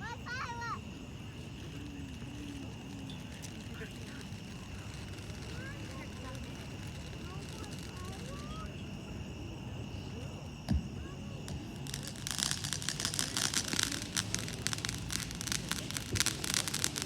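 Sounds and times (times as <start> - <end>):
firework crackling: 0.0 - 17.0
firework launch thump: 10.6 - 17.0.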